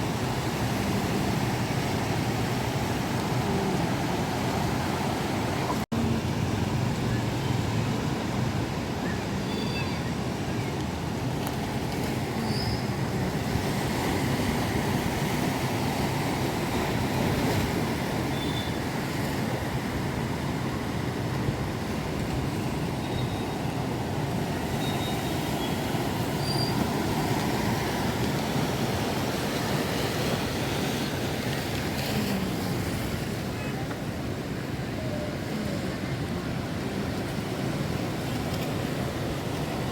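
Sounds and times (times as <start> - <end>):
sea surf: 0.0 - 39.9.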